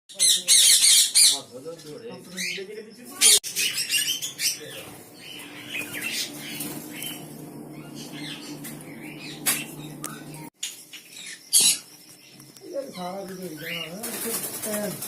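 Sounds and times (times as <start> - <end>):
birds squawking and chirping: 0.1 - 15.0
steady low hum: 3.4 - 15.0.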